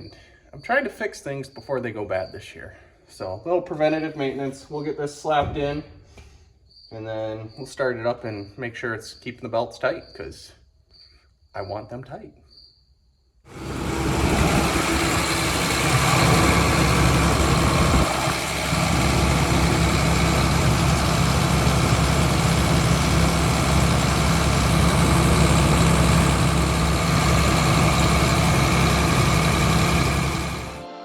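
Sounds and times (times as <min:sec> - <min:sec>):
combine harvester running: 0:13.5 - 0:30.8.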